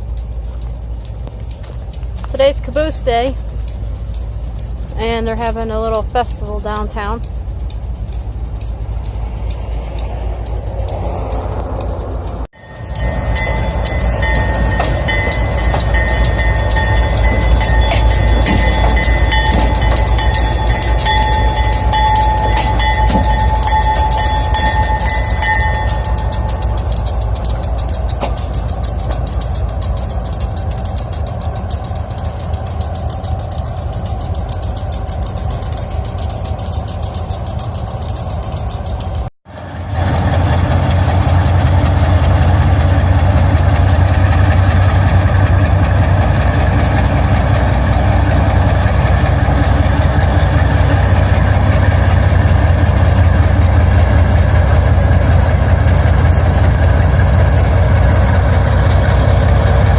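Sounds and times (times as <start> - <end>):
diesel locomotive engine idling: 0.0 - 59.9
freight train rolling on rails: 0.0 - 59.9.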